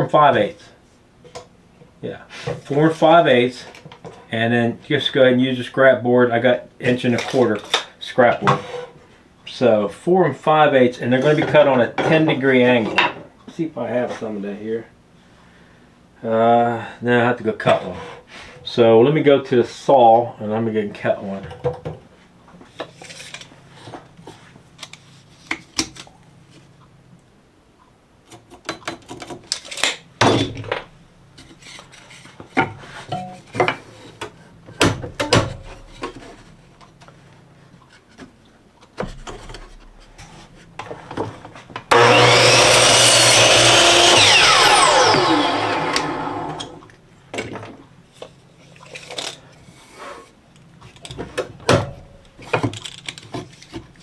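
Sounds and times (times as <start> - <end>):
power saw cutting board: 41.9 - 46.9.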